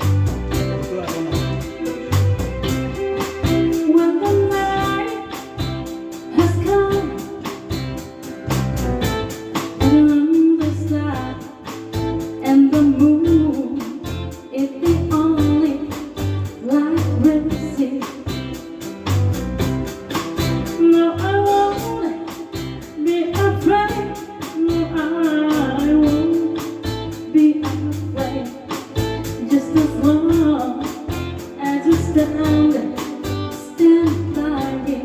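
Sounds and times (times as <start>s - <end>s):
person singing: 0.0s - 7.7s, 20.8s - 35.0s
bass line: 0.0s - 35.0s
guitar: 0.0s - 35.0s.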